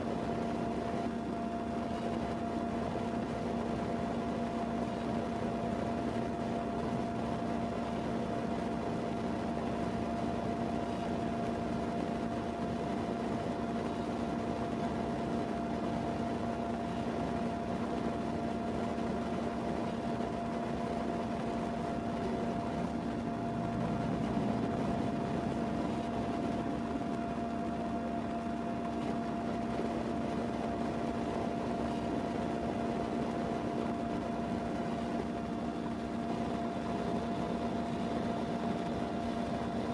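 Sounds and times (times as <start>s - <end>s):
constant hiss: 0.0s - 39.9s
mechanical hum: 0.0s - 39.9s.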